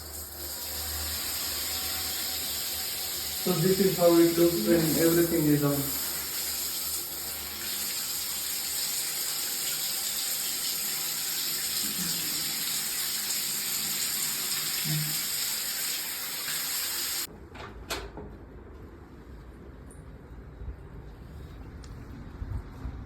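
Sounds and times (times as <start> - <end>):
shower water spraying: 0.0 - 17.3.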